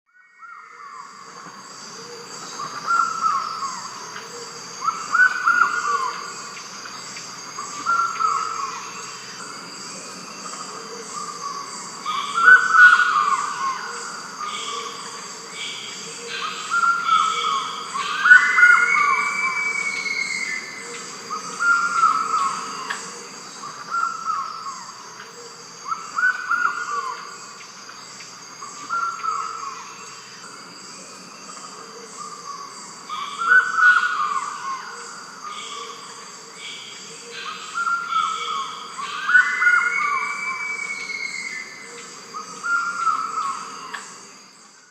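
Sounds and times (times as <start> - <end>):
insects droning: 0.1 - 44.9.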